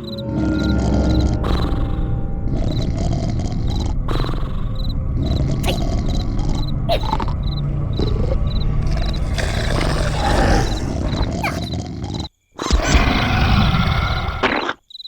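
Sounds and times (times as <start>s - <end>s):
cartoon animal roar: 8.0s - 14.8s.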